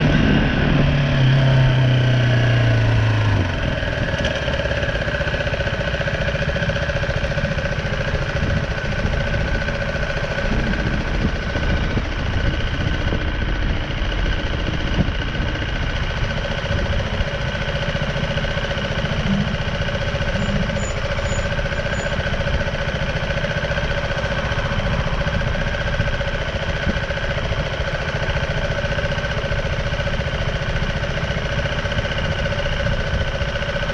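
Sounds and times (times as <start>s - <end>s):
wind noise: 0.0s - 1.6s, 10.4s - 15.6s
motorcycle engine running: 0.0s - 33.9s
road rumble: 0.0s - 33.9s.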